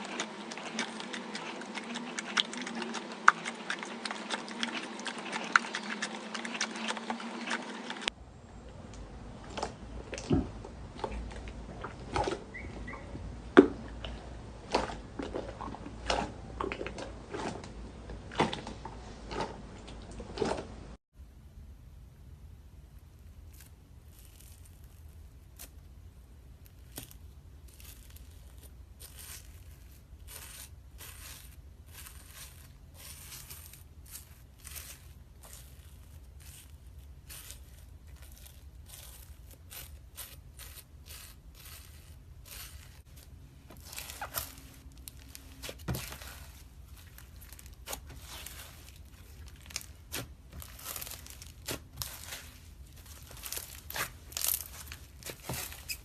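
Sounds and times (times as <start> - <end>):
slime squeezed crackling: 23.2 - 56.0.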